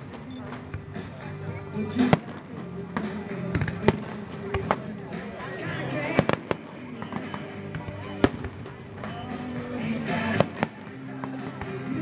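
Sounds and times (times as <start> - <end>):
pop music: 1.0 - 12.0
fireworks bursting: 1.9 - 12.0.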